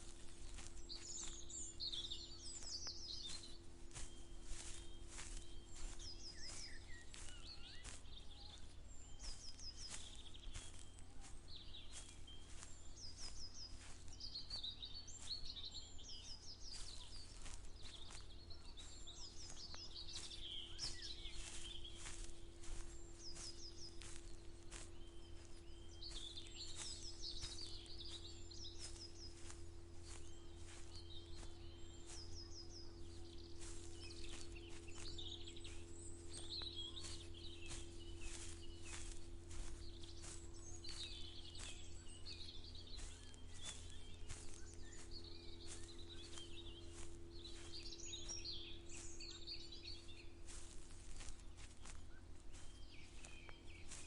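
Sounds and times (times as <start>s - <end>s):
footsteps walking: 0.0s - 54.0s
small birds singing: 0.0s - 54.0s.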